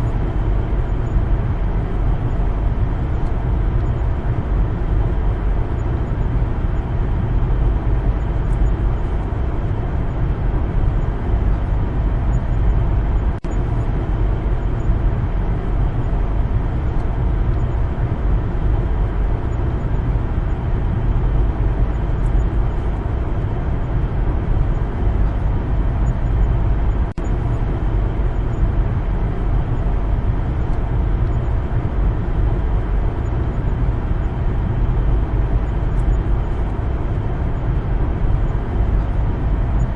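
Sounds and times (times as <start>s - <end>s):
faint hum: 0.0s - 39.9s.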